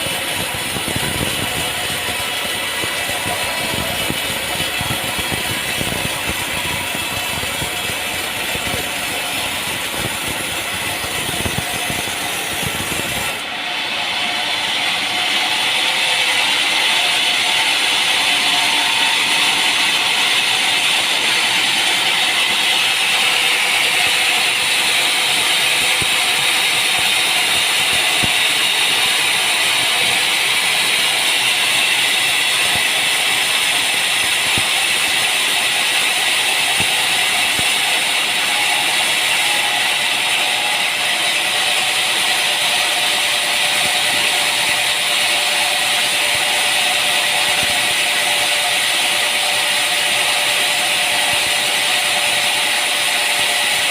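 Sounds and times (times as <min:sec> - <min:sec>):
sawmill machinery rattling: 0:00.0 - 0:53.9.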